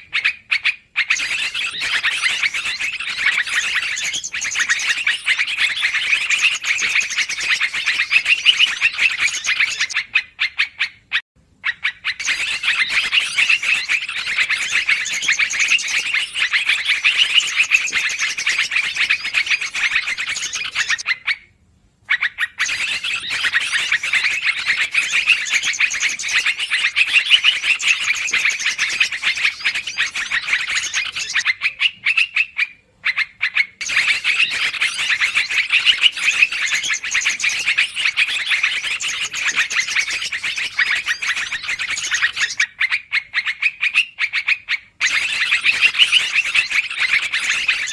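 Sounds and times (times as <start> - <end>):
bulbuls chattering: 1.0 - 10.1, 11.9 - 21.1, 22.6 - 32.5, 33.8 - 42.6.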